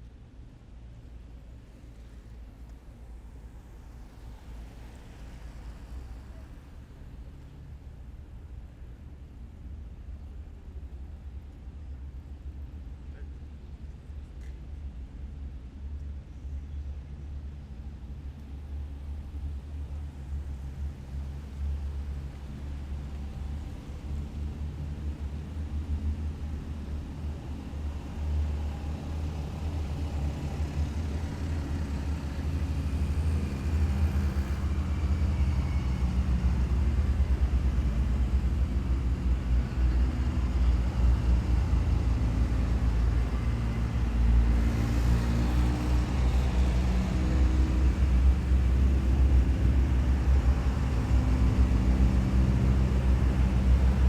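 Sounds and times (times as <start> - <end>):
heavy vehicles driving past: 19.0 - 54.0.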